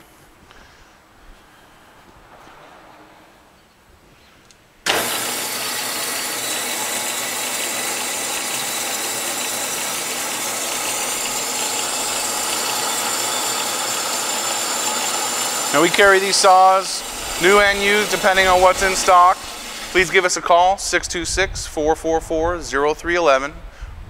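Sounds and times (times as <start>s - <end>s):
band saw whirring: 4.8s - 21.1s.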